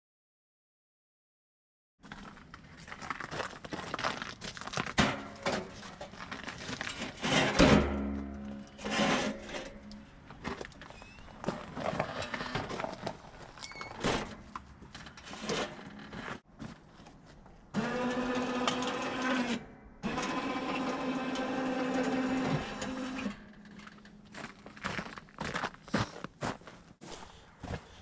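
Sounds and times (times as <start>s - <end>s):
small electric motor whining: 17.8s - 23.4s.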